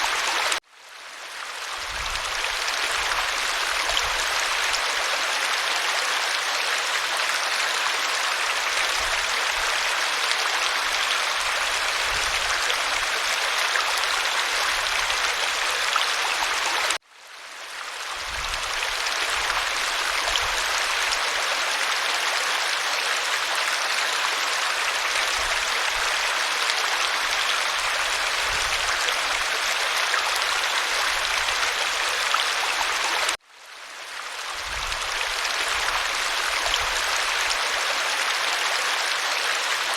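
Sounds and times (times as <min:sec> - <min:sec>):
waterfall rushing: 0:00.0 - 0:00.6.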